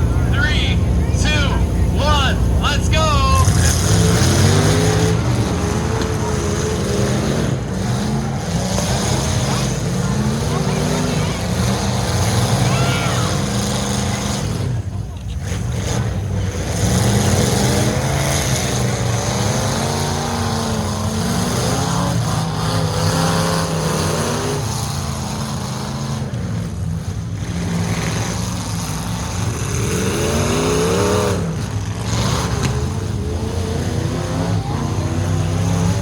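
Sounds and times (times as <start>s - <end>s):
steady low drone: 0.0s - 7.7s
truck engines revving: 0.0s - 36.0s.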